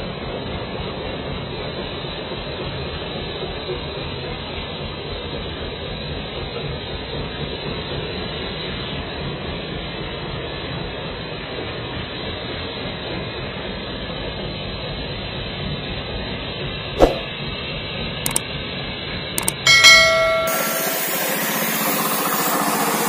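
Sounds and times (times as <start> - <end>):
machine running steadily: 19.4 - 23.0.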